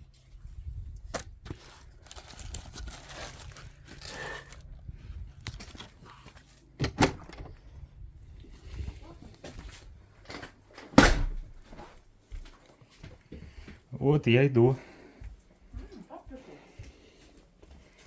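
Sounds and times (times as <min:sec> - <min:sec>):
rustling handling noise: 0:00.0 - 0:13.9.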